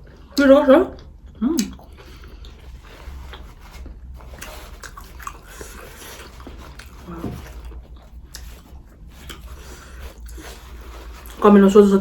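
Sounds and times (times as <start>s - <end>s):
biting and chewing food: 0.0s - 11.4s
wet mouth clicks and smacks: 1.5s - 2.6s.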